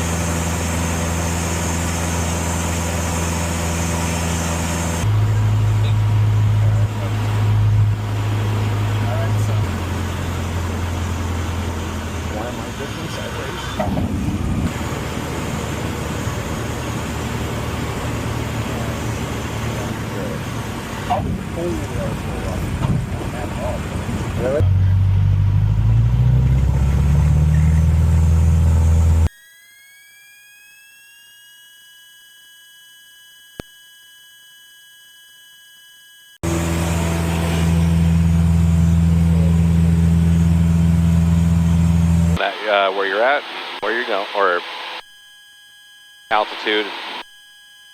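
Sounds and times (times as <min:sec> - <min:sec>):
airplane engine droning in cabin: 0:00.0 - 0:24.6, 0:36.5 - 0:45.0, 0:46.3 - 0:47.2
steady electronic tone: 0:42.3 - 0:45.1, 0:46.3 - 0:47.3.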